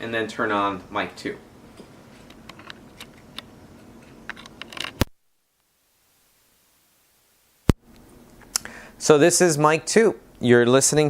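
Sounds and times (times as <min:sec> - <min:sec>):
faint hiss: 0:05.4 - 0:11.0.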